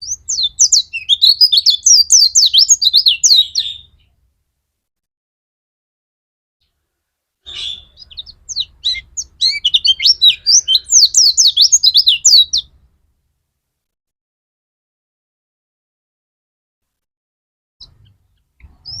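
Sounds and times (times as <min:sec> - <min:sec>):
bird singing high chirps: 0:00.0 - 0:04.1, 0:07.4 - 0:12.8, 0:17.8 - 0:19.0.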